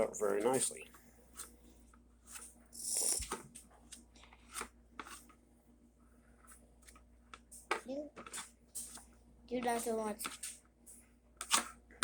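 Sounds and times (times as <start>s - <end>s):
scratchy hissing scrape: 2.8s - 3.4s.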